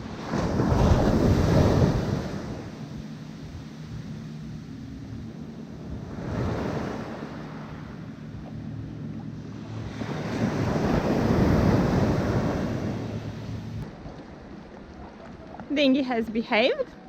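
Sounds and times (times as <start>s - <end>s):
wind on microphone: 0.0s - 15.7s
outboard motor running: 1.9s - 13.8s.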